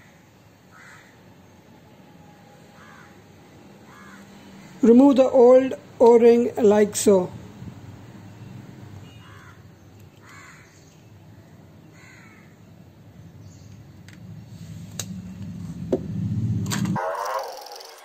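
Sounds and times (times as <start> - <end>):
bird harsh calls: 3.9 - 4.8, 10.2 - 12.6.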